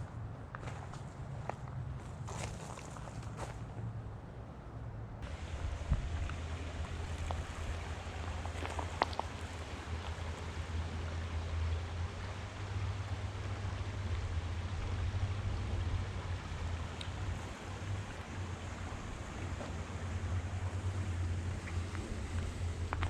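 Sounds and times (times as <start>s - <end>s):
faint outdoor hiss: 0.0s - 23.0s
wind buffeting microphone: 5.2s - 10.4s.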